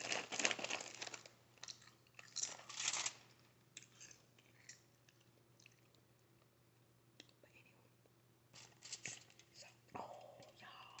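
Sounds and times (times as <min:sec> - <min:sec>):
person chewing and crunching food: 0:00.0 - 0:06.2.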